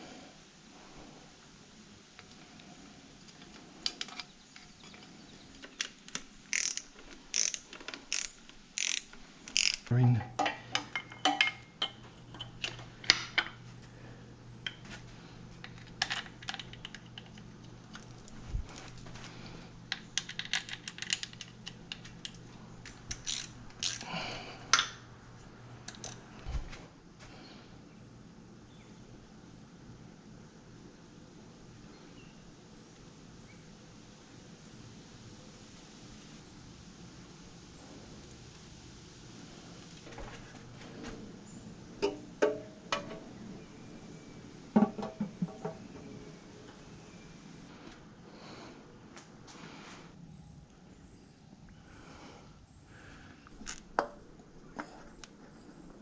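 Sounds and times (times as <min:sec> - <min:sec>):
ratchet wrench clicking: 0:06.1 - 0:09.9, 0:23.1 - 0:24.0.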